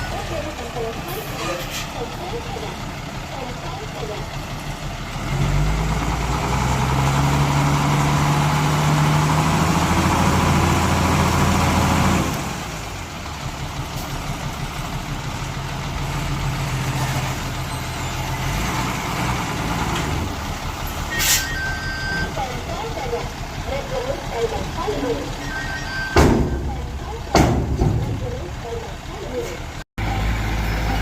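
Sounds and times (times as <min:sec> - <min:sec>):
heavy diesel engine running: 0:00.0 - 0:31.0
high beep: 0:21.1 - 0:22.4, 0:25.4 - 0:26.8.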